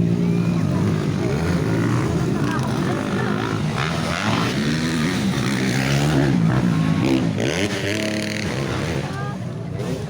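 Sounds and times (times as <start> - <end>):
dirt bike engines revving: 0.0 - 10.0.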